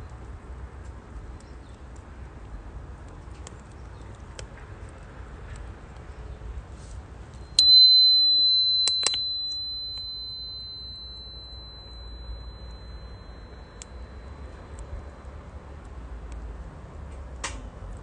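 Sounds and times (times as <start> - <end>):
metal chime ringing: 7.5 - 15.5.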